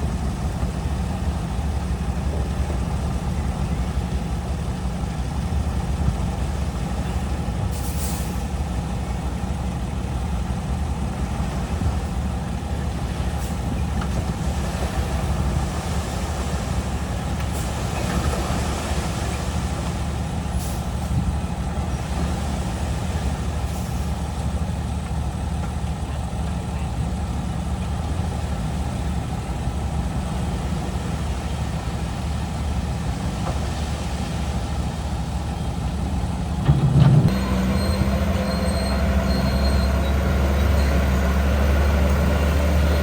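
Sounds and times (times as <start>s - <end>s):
diesel machinery engine drone: 0.0s - 43.0s.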